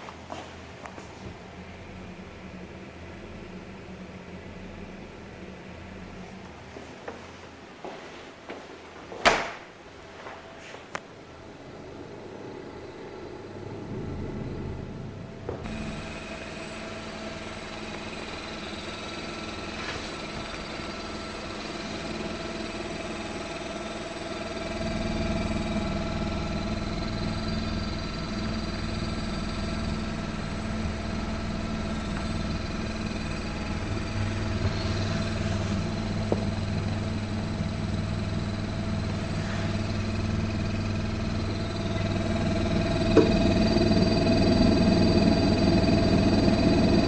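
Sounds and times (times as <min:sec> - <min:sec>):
refrigerator humming: 0:11.2 - 0:47.0
high-pitched buzz: 0:13.8 - 0:47.0.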